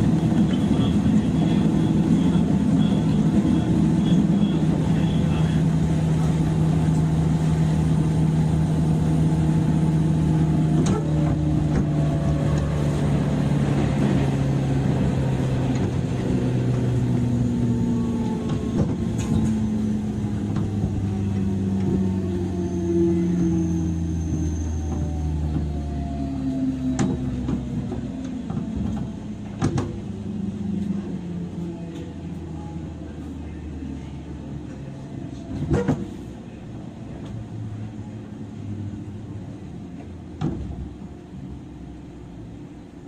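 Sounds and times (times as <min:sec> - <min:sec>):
electric train motor hum: 0:00.0 - 0:35.5.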